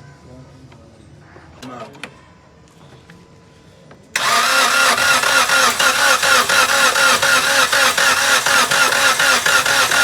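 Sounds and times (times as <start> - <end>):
car engine running: 4.2 - 10.0
starter motor cranking: 4.2 - 10.0.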